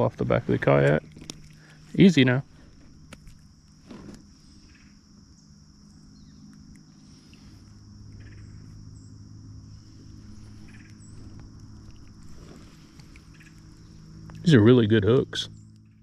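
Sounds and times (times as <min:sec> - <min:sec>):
insects chirring: 0:00.0 - 0:16.0
low steady hum: 0:00.0 - 0:16.0
bird chirps: 0:04.4 - 0:07.3, 0:08.1 - 0:12.0, 0:13.1 - 0:14.6.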